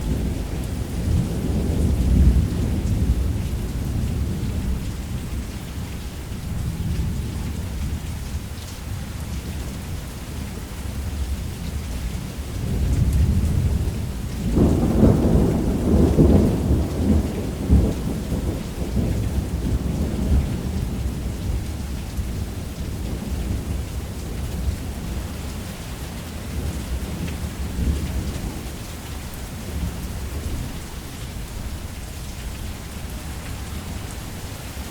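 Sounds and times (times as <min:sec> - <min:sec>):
heavy rain: 0:00.0 - 0:34.9
low rumble of thunder: 0:00.0 - 0:34.9
loud thunderclap: 0:14.5 - 0:20.4.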